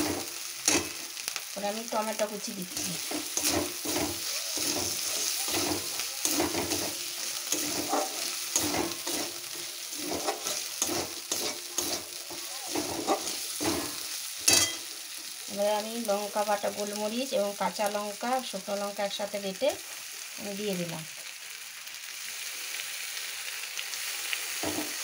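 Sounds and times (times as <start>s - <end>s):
tomato frying in oil: 0.0s - 25.0s
metal spatula scraping pan: 2.7s - 14.9s.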